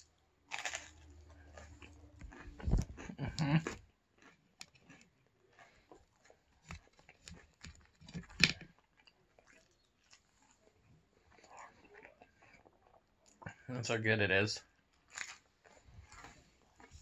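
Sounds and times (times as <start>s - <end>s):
crunchy chewing: 0.0s - 13.7s, 14.6s - 17.0s
wet mouth sounds: 1.4s - 6.5s.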